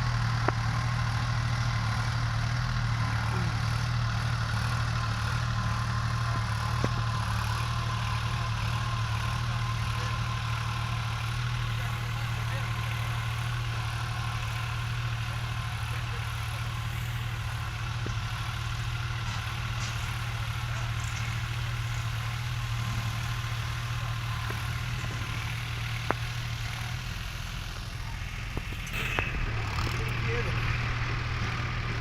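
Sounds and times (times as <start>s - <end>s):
tractor diesel engine droning: 0.0s - 32.0s.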